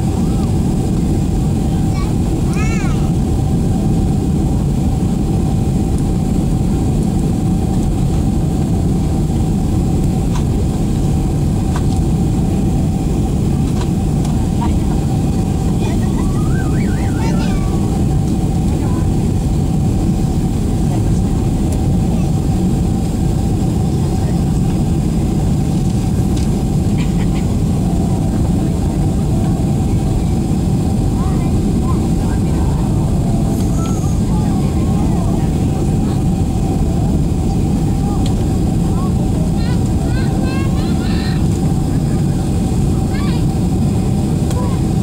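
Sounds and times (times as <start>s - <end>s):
airliner cabin engine rumble: 0.0s - 45.0s.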